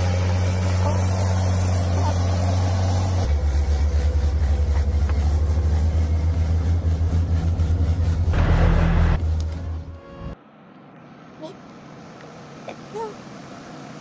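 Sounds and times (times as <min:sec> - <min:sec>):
heavy vehicle engine running: 0:00.0 - 0:10.4
loud rush of noise: 0:08.4 - 0:09.4.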